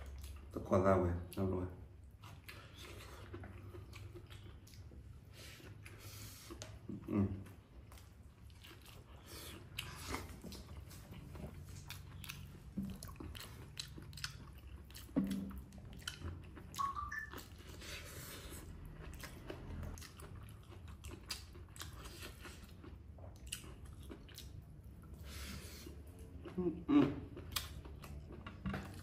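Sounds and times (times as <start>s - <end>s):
person chewing food: 0.0s - 0.6s, 1.3s - 29.0s
wet mouth clicks: 16.1s - 17.8s.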